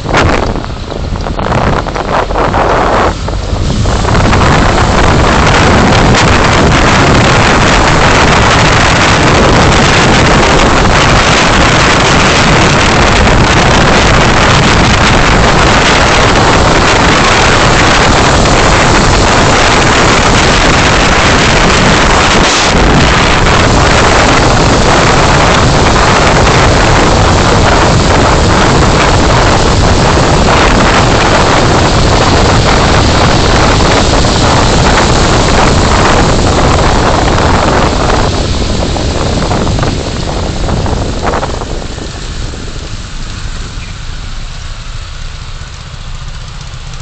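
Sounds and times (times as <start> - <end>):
car road and engine noise: 0.0 - 47.0.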